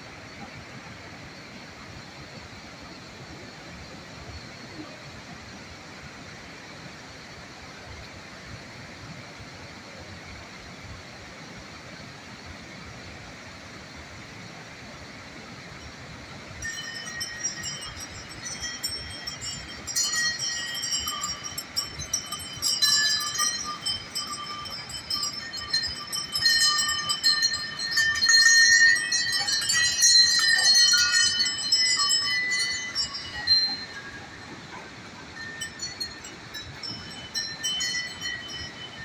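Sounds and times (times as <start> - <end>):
chiming bell-like tones: 16.5 - 39.0.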